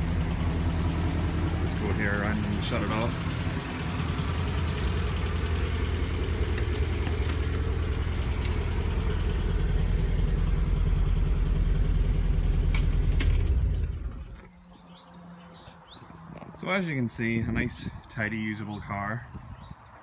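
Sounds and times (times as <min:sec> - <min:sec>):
car engine idling: 0:00.0 - 0:14.6
engine running down: 0:00.0 - 0:16.6
sharp clicks: 0:06.4 - 0:07.6.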